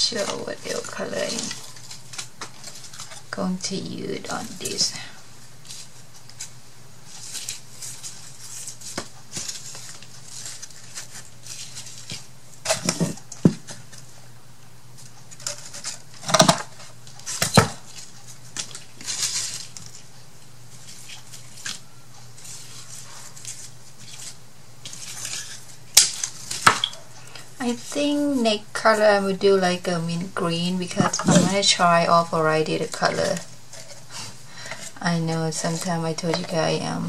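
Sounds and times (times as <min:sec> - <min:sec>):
scratchy brushing and rustling: 0:04.3 - 0:13.2, 0:17.0 - 0:26.6.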